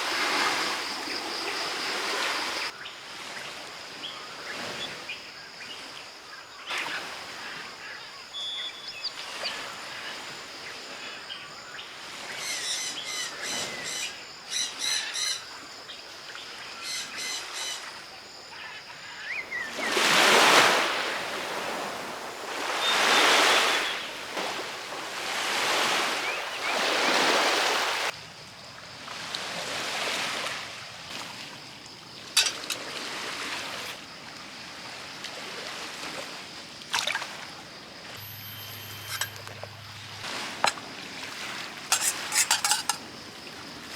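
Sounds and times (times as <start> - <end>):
sea waves washing onto shore: 19.6 - 28.2, 38.2 - 43.9
birds chirping: 22.2 - 27.7, 38.2 - 40.3
faint high tone: 38.2 - 40.2.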